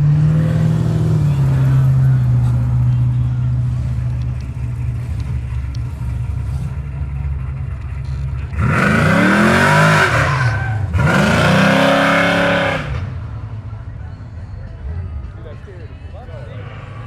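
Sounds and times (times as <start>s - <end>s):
car engine idling: 0.0s - 11.2s
car engine revving: 0.0s - 13.2s.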